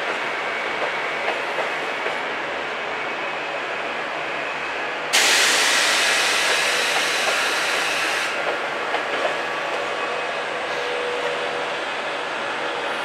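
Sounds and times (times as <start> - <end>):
train clicks: 0.0 - 2.3, 5.2 - 10.0
loud steady train hiss: 0.0 - 13.0
train rolling rumble: 0.0 - 13.0.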